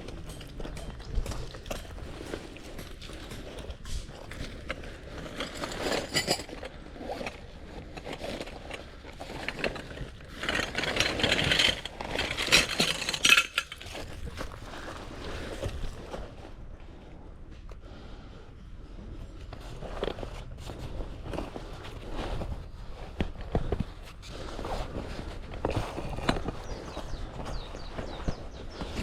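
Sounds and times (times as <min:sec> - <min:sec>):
metal camping gear clinking: 0:00.0 - 0:15.0.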